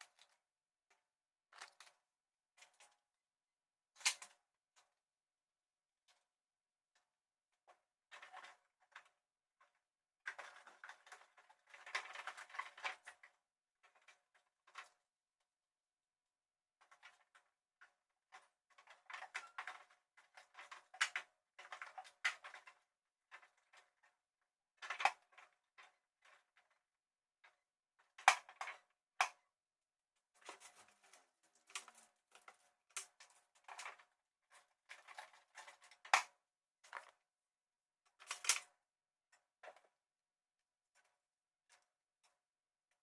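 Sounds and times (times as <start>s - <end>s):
objects clicking and clattering: 0.0s - 2.0s, 16.8s - 24.1s, 30.3s - 37.2s, 38.1s - 38.8s.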